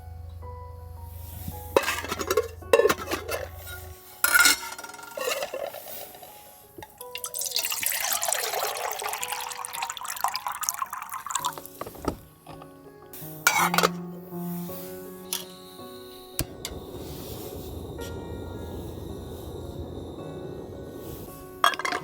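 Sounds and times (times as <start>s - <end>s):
soft background music: 0.0s - 22.0s
cookware clinking: 1.8s - 12.8s, 13.5s - 14.2s, 21.6s - 22.0s
liquid pouring: 4.2s - 12.2s, 19.6s - 22.0s.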